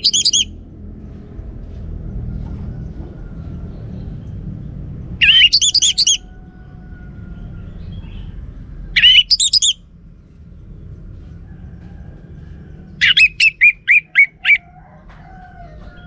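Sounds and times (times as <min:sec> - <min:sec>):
thrush singing: 0:00.0 - 0:00.5, 0:05.2 - 0:06.3, 0:09.0 - 0:09.8, 0:13.0 - 0:14.6
steady low rumble: 0:00.0 - 0:14.6.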